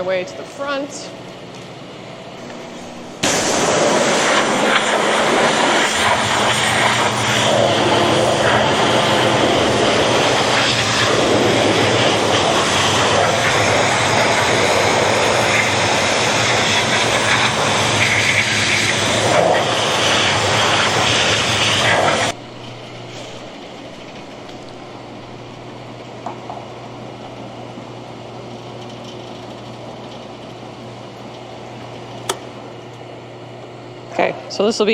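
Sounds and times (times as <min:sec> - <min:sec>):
pump humming: 0:00.0 - 0:28.8
pressure washer jet hissing: 0:02.6 - 0:25.5.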